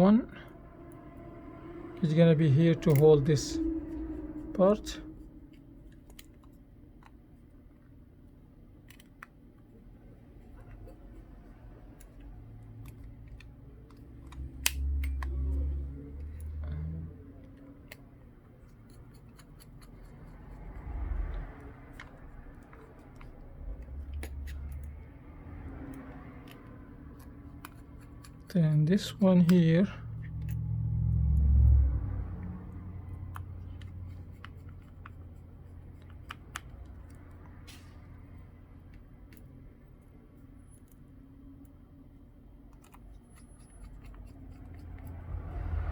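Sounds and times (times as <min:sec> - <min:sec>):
low rumble: 0:00.0 - 0:06.5, 0:20.3 - 0:26.4, 0:29.9 - 0:34.2
small tools clicking on phone: 0:25.9 - 0:29.6, 0:33.3 - 0:37.6, 0:42.7 - 0:45.3.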